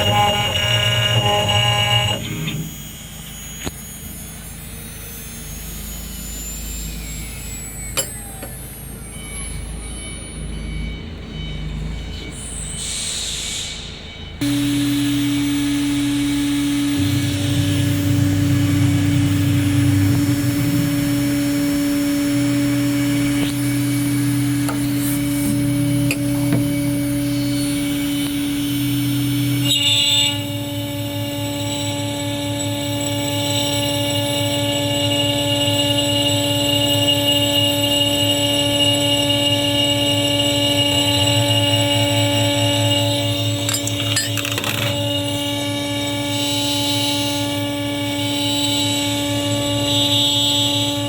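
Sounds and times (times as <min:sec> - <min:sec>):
wood router humming and whining: 0:00.0 - 0:04.0, 0:14.4 - 0:51.0.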